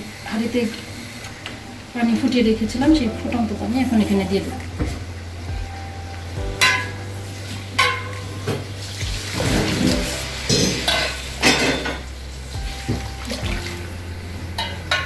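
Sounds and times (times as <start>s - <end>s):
low hum: 2.4s - 15.0s
metal pots clanking: 6.5s - 7.1s, 7.7s - 8.7s, 9.4s - 12.1s, 14.5s - 15.0s
scraping or sizzling: 6.6s - 12.6s.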